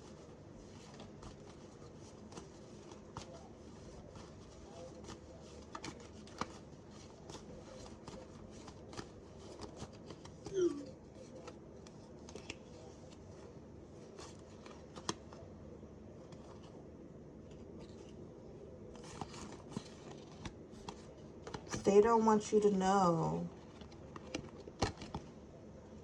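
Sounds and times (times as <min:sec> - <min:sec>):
cards being shuffled: 0:00.0 - 0:15.5, 0:18.9 - 0:21.8, 0:23.5 - 0:25.3.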